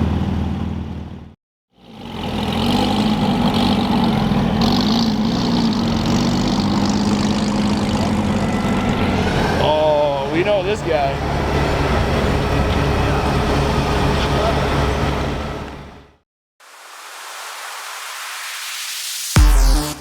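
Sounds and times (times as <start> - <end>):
car engine idling: 0.0 - 1.4, 2.6 - 16.1.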